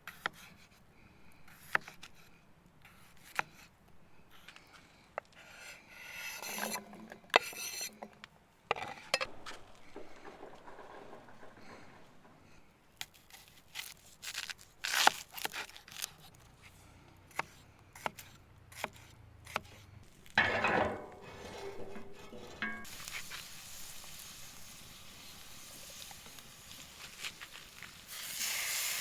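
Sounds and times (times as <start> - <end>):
loud scraping rush: 20.4 - 22.9
cooking utensils clinking: 20.4 - 23.3
food sizzling in a hot pan: 22.8 - 29.0.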